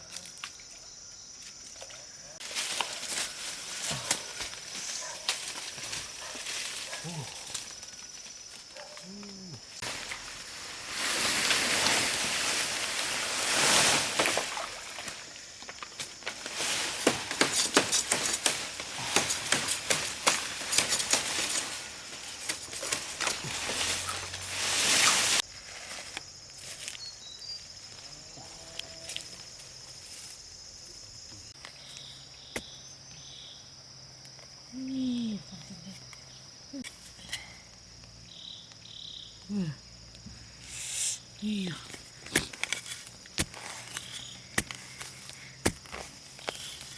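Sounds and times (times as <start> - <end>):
insect chirps: 0.0 - 46.9
insect drone: 0.0 - 46.9
water splashing in a river: 10.9 - 15.2.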